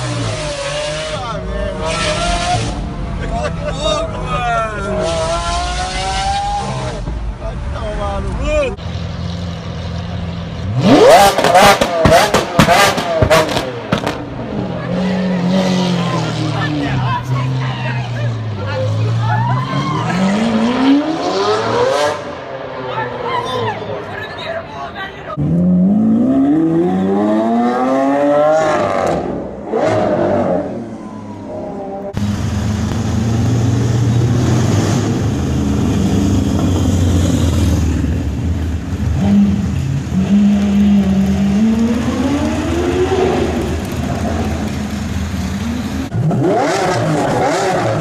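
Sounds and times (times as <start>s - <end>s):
sports car engine accelerating: 8.9s - 17.5s, 25.4s - 48.0s.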